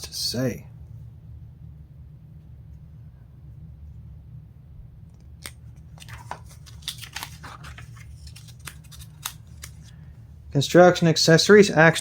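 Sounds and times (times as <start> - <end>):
steady low hum: 0.0 - 12.0
paper pages crackling and rustling: 5.4 - 10.0.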